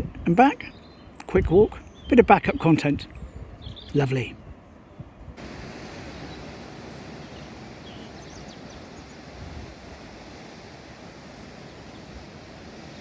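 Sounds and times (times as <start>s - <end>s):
wind: 0.0s - 13.0s
sea surf: 5.4s - 13.0s.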